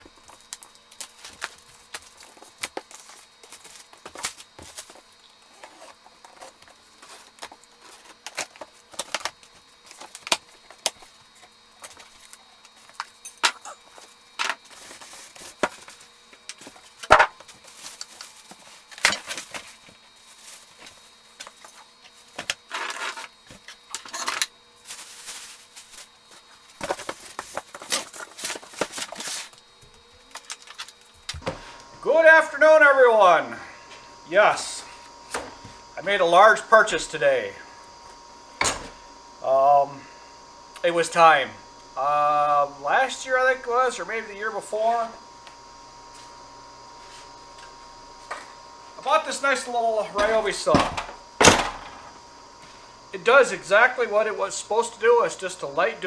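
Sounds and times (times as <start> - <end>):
faint steady hum: 0.0 - 56.0
short rustling: 13.8 - 31.4.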